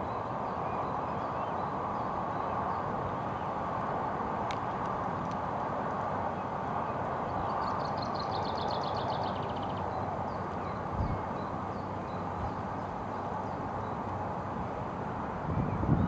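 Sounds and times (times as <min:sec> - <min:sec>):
bird chirps: 0:07.4 - 0:12.6.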